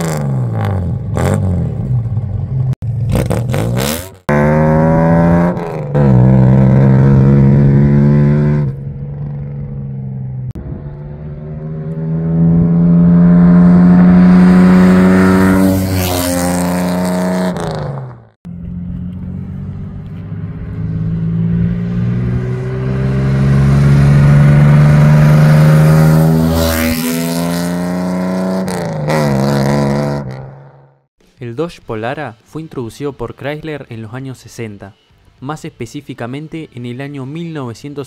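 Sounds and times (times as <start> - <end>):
car engine driving past: 4.4 - 30.9.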